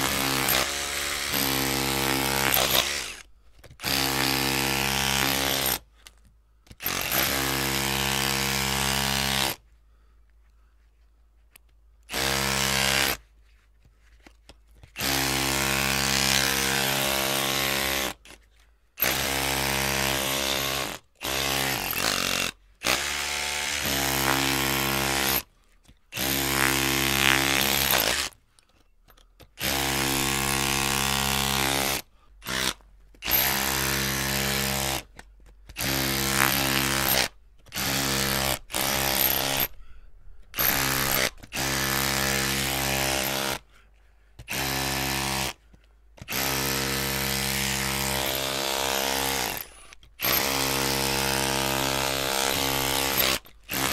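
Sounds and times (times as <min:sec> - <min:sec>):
electric drill running: 0:00.0 - 0:03.2, 0:35.8 - 0:39.7, 0:40.6 - 0:43.6, 0:50.2 - 0:53.9.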